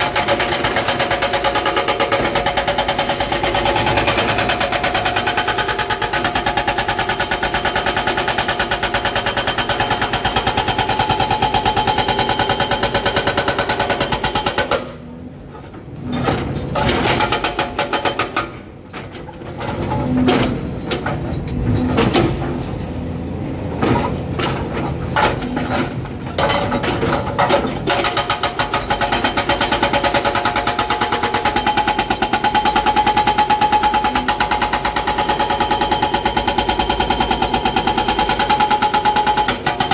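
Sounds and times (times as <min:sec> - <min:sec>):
hydraulic breaker hammering rock: 0:00.0 - 0:15.0, 0:23.7 - 0:39.9
excavator engine running: 0:00.0 - 0:39.9.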